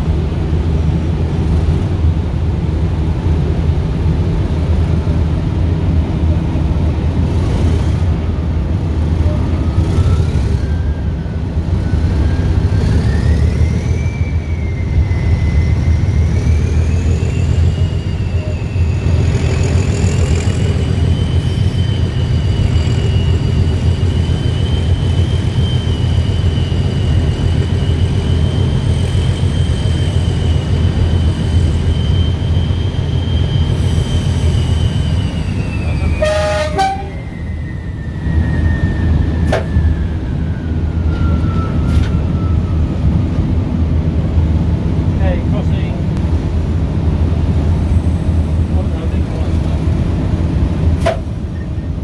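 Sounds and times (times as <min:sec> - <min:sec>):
diesel train engine rumble: 0:00.0 - 0:52.0
engine whine: 0:03.2 - 0:52.0.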